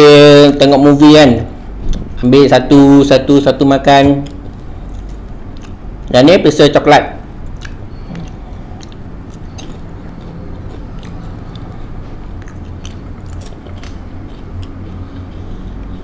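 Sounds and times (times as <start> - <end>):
steady low hum: 0.0 - 16.0
person chewing popcorn: 4.2 - 6.1, 7.4 - 16.0.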